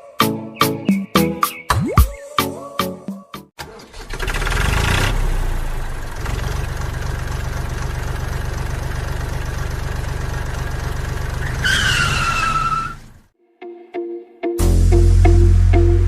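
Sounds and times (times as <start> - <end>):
high squeal: 11.4 - 13.0.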